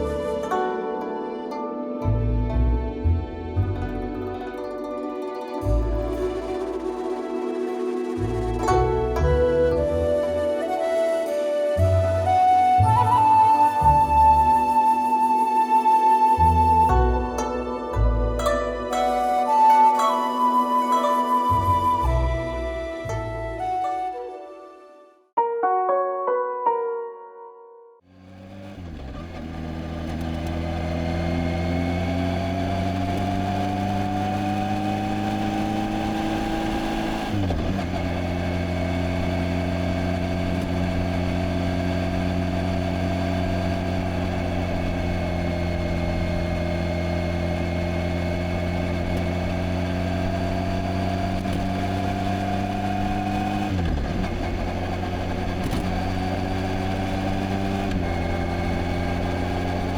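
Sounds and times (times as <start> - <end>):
motorcycle engine running: 28.2 - 59.9.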